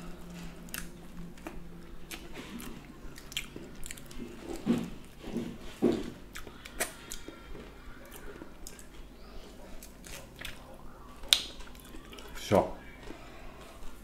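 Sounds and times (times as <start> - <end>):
wet chewing and biting: 0.2 - 12.4.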